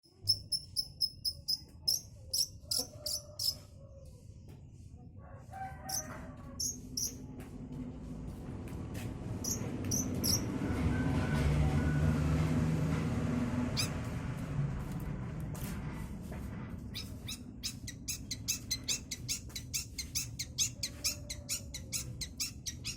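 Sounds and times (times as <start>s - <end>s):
bird chirping sharp high calls: 9.5s - 10.5s.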